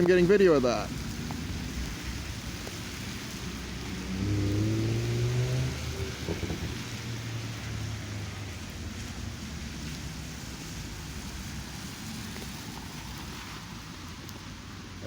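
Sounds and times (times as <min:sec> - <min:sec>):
car driving past: 0:00.7 - 0:14.5
wind noise on microphone: 0:00.9 - 0:09.4.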